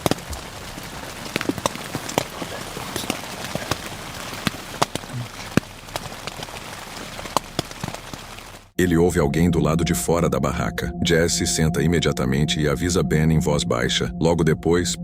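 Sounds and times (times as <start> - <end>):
steady hiss: 0.0 - 8.8
water drops tapping on tent fabric: 0.0 - 8.8.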